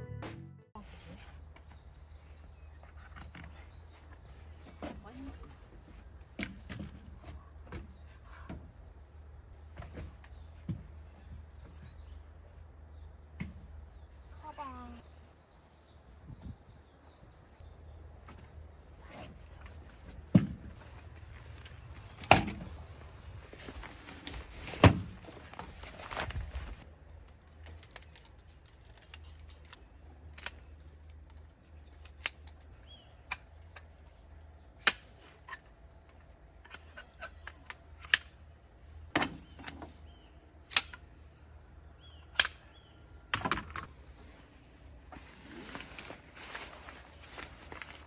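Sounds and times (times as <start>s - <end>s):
knocks and clicks of objects handled: 19.6s - 26.6s, 42.2s - 44.0s.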